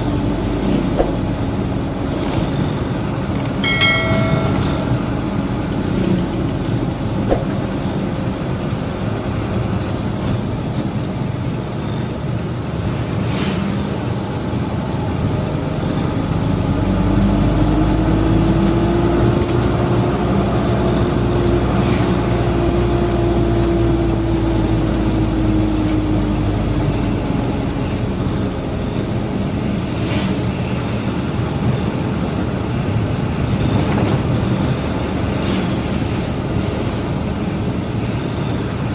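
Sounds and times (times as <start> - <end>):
dump truck engine droning: 0.0 - 38.9.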